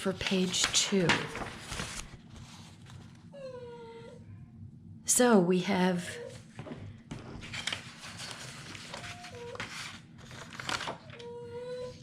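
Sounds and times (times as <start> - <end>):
paper rustling and crinkling: 0.0 - 3.2, 7.1 - 11.4
pet whining: 3.2 - 4.6, 8.5 - 9.9, 10.9 - 12.0.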